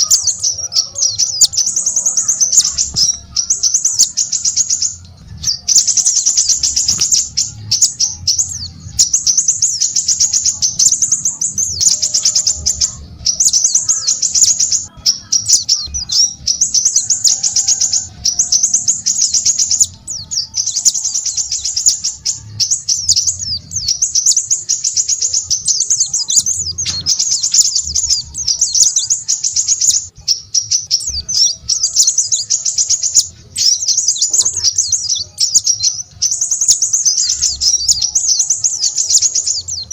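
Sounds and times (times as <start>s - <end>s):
songbird twittering: 0.0s - 39.9s.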